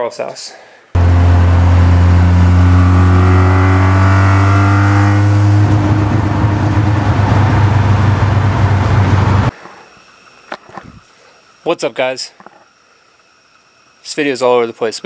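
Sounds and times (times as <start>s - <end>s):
car engine accelerating: 1.0s - 9.5s.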